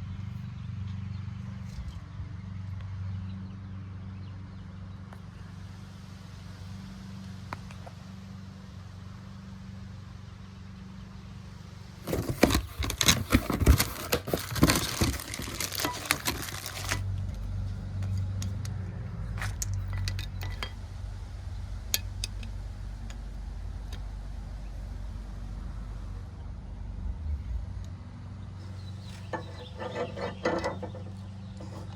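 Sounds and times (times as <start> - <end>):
steady low hum: 0.0 - 31.9
metal hand tools clinking: 19.4 - 20.8.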